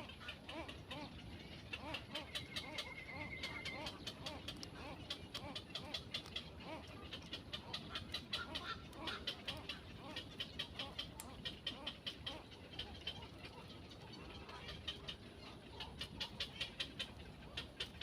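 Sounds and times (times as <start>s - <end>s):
soft low bird calls: 0.0s - 18.0s.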